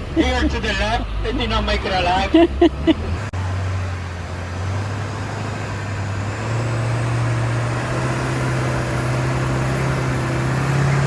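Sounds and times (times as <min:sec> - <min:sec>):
truck engine running under load: 0:00.0 - 0:11.0.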